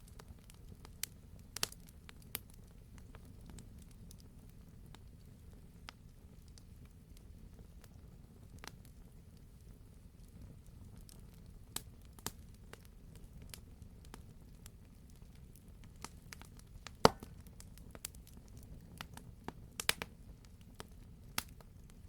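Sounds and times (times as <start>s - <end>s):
wood fire pops and snaps: 0.1s - 5.0s, 10.2s - 22.0s
flames rumbling: 0.1s - 22.0s.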